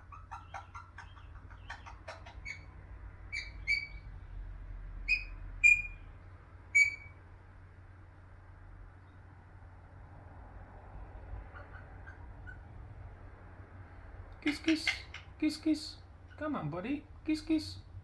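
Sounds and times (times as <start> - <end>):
parakeet chattering: 0.0 - 4.0, 5.1 - 6.0, 6.7 - 7.2, 14.4 - 16.7
parakeet sharp calls: 0.0 - 4.0, 5.1 - 6.1, 6.7 - 7.2, 14.5 - 15.4.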